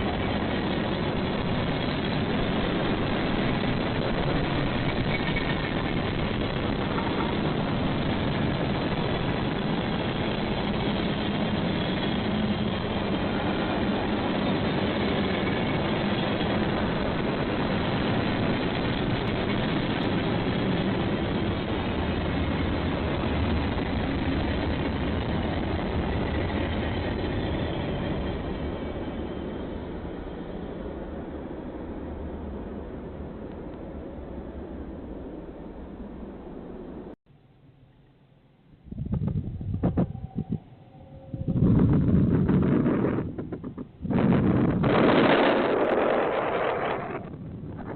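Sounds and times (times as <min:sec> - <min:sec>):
diesel freight train engine rumble: 0:00.0 - 0:37.2.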